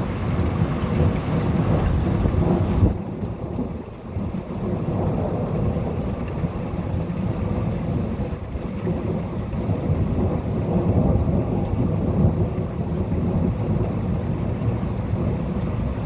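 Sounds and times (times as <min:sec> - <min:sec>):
low rumble of thunder: 0:00.0 - 0:16.0
rain falling: 0:00.0 - 0:16.0.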